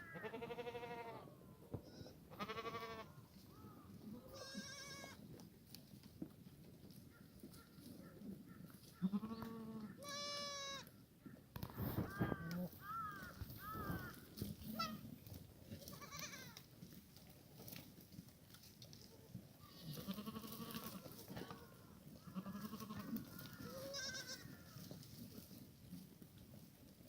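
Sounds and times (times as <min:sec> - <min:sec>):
goats bleating: 0:00.1 - 0:03.2, 0:04.0 - 0:05.2, 0:08.9 - 0:10.9, 0:15.8 - 0:16.7, 0:19.7 - 0:24.9.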